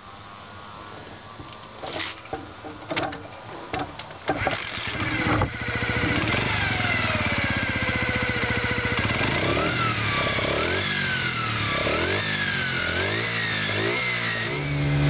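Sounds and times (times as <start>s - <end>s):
engine sputters and pops: 1.4s - 11.0s
small motorcycle engine starting: 1.6s - 15.0s.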